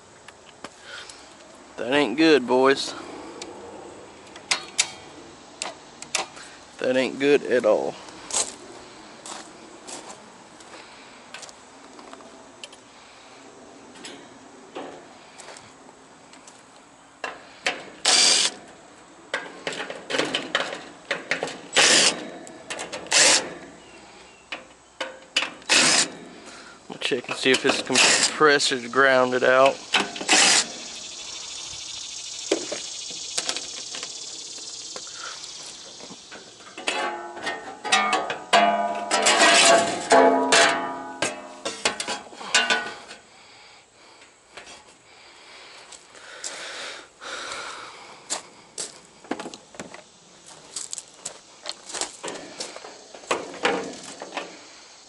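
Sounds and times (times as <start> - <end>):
high-pitched hiss: 14.8 - 18.6, 19.4 - 55.0.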